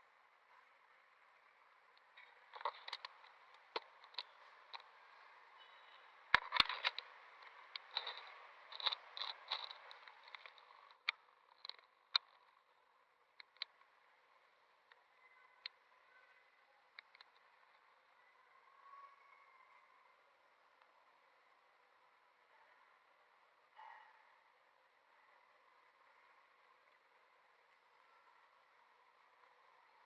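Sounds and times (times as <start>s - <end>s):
faint rustling and scraping: 1.4s - 14.2s
short clicks and crackles: 1.9s - 5.2s, 6.3s - 12.7s, 13.3s - 14.0s.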